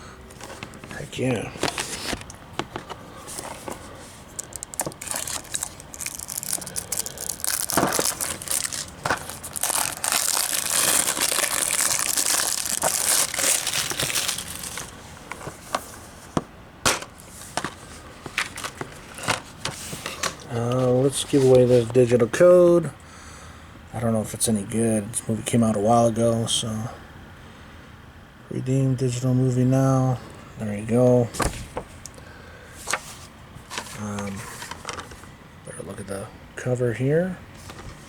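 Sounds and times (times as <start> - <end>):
plastic wrap crinkling: 4.3 - 15.7.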